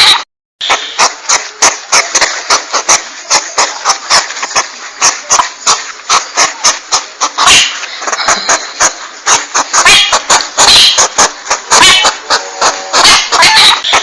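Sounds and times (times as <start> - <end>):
porcupine clicking: 0.6 - 14.0
steady hiss: 0.6 - 14.0.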